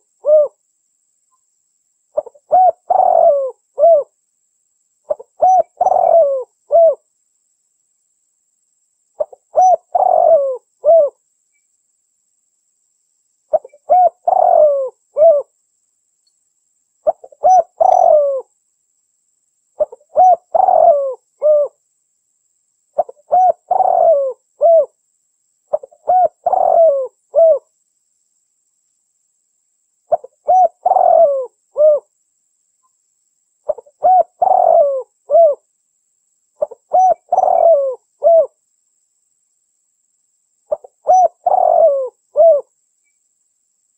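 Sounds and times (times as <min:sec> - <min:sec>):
dove cooing: 0:00.0 - 0:00.6, 0:02.2 - 0:04.1, 0:05.1 - 0:07.0, 0:09.2 - 0:11.2, 0:13.5 - 0:15.5, 0:17.0 - 0:18.5, 0:19.8 - 0:21.8, 0:23.0 - 0:25.0, 0:25.7 - 0:27.7, 0:30.1 - 0:32.1, 0:33.7 - 0:35.6, 0:36.6 - 0:38.6, 0:40.7 - 0:42.7.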